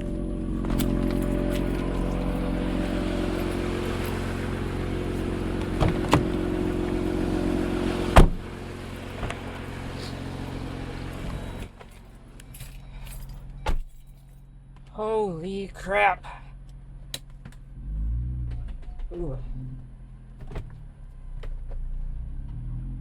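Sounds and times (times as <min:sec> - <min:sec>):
car engine idling: 0:00.0 - 0:22.3
car door slamming: 0:00.6 - 0:10.4, 0:13.6 - 0:13.9, 0:20.4 - 0:20.8.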